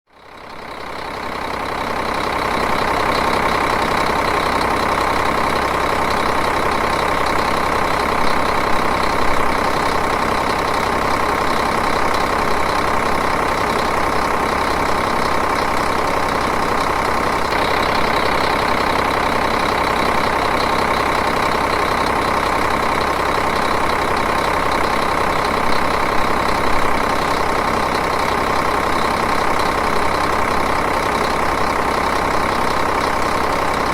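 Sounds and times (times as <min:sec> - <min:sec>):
diesel engine idling: 0:00.1 - 0:33.9.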